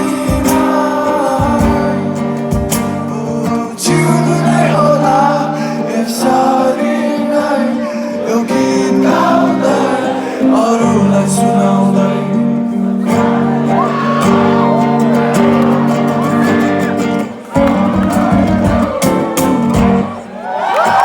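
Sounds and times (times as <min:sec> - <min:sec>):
live rock band playing: 0:00.0 - 0:04.7, 0:13.0 - 0:20.3
man singing: 0:00.0 - 0:20.1.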